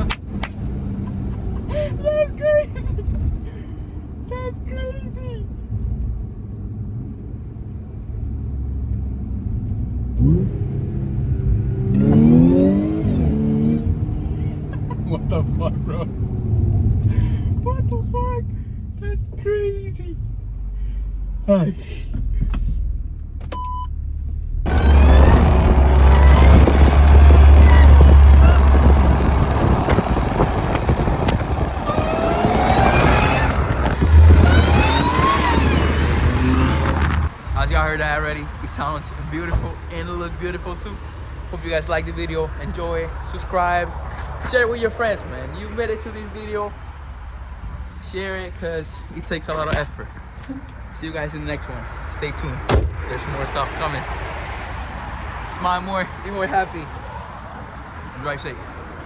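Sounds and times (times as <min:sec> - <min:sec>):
car engine revving: 0:00.0 - 0:04.9, 0:08.1 - 0:58.6
loud low engine drone: 0:24.6 - 0:38.7.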